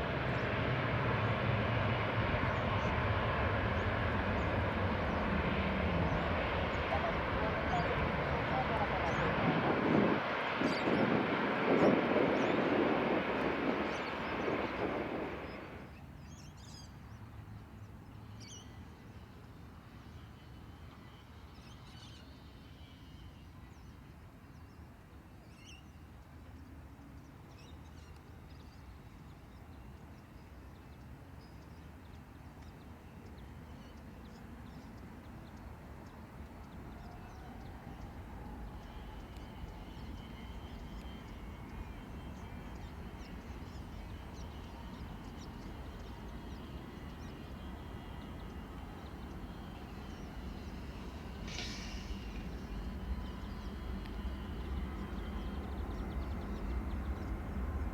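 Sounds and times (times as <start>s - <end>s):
faint steady low rumble: 0.0s - 15.8s
passing jet airliner: 0.0s - 15.9s, 34.3s - 57.9s.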